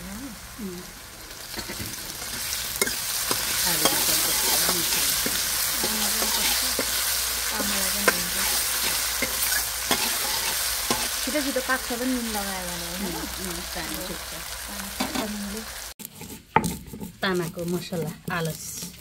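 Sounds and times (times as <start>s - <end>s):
potatoes sizzling in hot oil: 0.0s - 19.0s
metal ladle scraping pan: 1.5s - 11.2s, 16.0s - 19.0s.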